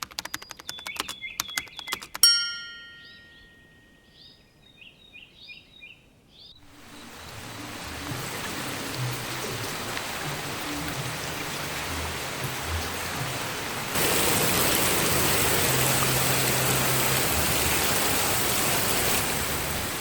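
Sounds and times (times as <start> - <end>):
clicking ringing notes: 0.0 - 4.1
small birds chirping: 0.0 - 7.1
steady rain: 6.7 - 20.0.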